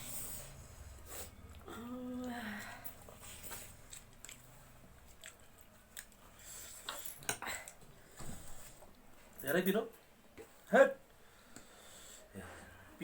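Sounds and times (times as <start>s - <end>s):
chewing noodles: 3.2s - 7.1s.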